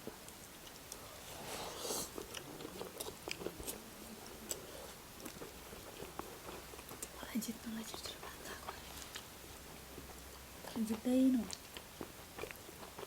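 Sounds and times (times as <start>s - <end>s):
chewing and biting food: 1.6s - 7.2s, 8.0s - 13.0s
food crunch: 2.0s - 7.2s, 7.9s - 13.0s.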